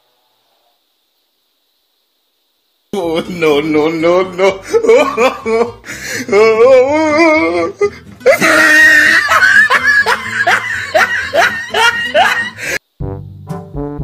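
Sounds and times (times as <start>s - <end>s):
loud laughter: 4.1s - 12.8s
music: 5.7s - 14.0s.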